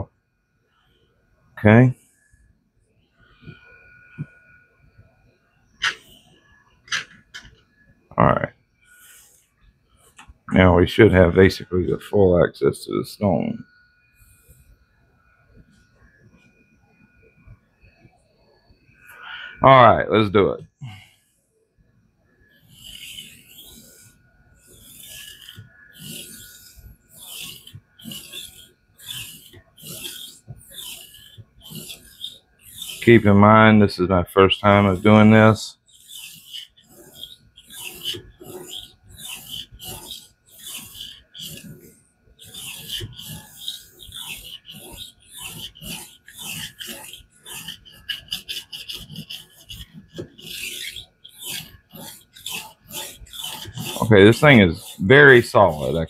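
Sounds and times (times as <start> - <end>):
whetstone rasping on knife: 5.8 - 6.2, 22.6 - 33.5, 34.2 - 56.0.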